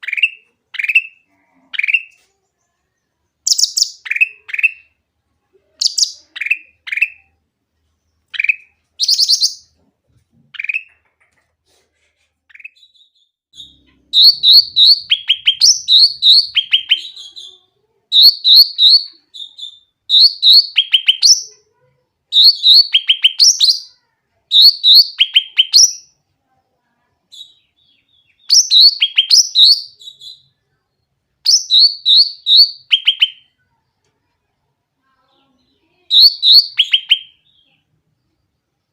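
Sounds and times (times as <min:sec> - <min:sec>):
bulbul chirping: 0:03.4 - 0:05.0, 0:05.8 - 0:07.3, 0:08.2 - 0:09.7, 0:12.5 - 0:17.2, 0:18.2 - 0:21.5, 0:22.4 - 0:23.9, 0:24.5 - 0:26.1, 0:28.2 - 0:30.4, 0:31.4 - 0:33.4, 0:36.1 - 0:37.7.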